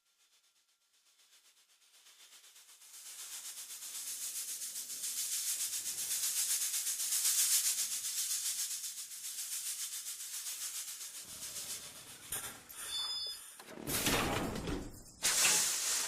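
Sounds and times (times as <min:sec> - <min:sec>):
rhythmic shaking hiss: 0:02.1 - 0:12.7.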